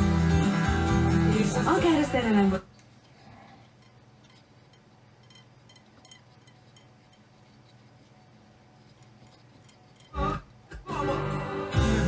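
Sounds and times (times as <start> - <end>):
low steady hum: 1.5 - 10.9.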